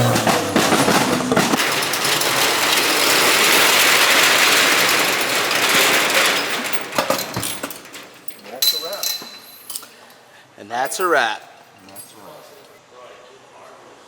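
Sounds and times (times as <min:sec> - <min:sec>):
car engine revving with crackles: 0:00.0 - 0:01.6.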